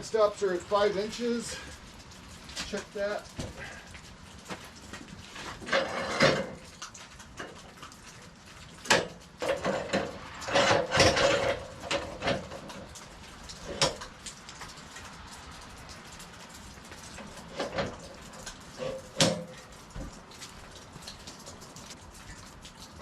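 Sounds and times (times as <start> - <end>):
metal and wood clanking: 2.5 - 14.3, 16.9 - 22.0.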